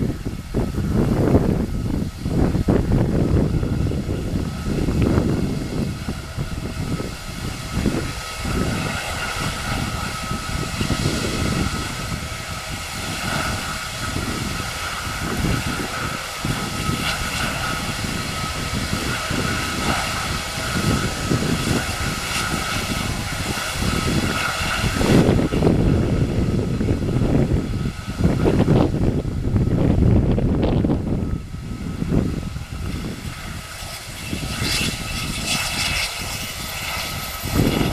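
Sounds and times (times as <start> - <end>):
jet engines whining: 0.0 - 37.9
wind buffeting microphone: 0.0 - 37.9.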